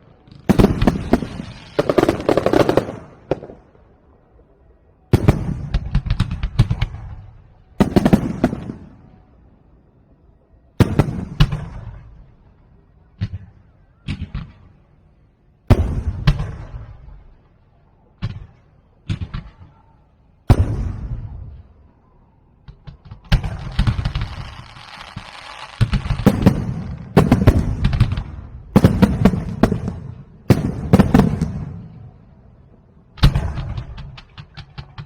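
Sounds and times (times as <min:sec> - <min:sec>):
fireworks bangs and crackle: 0:00.0 - 0:03.8, 0:05.1 - 0:09.2, 0:10.8 - 0:12.4, 0:15.7 - 0:17.3, 0:20.5 - 0:21.8, 0:22.6 - 0:35.0.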